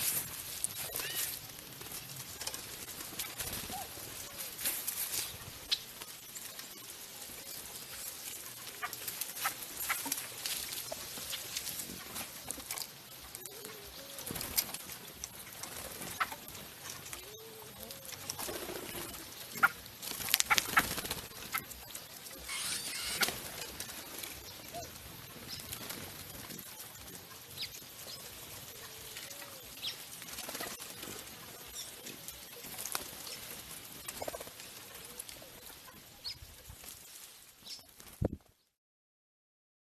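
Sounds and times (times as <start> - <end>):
wings flapping: 0.0 - 38.6
short arching bird calls: 22.4 - 23.4.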